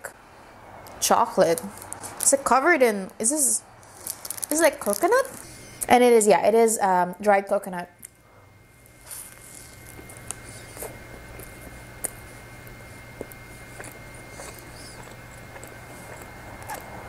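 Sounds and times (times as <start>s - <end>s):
low steady hum: 0.0s - 17.0s
chewing mouth sounds: 9.0s - 17.0s.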